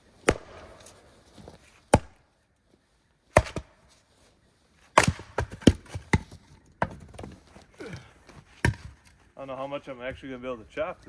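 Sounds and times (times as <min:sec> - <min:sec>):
axe chopping frozen firewood: 0:00.2 - 0:01.0, 0:01.9 - 0:02.2, 0:03.3 - 0:03.8, 0:04.9 - 0:09.0.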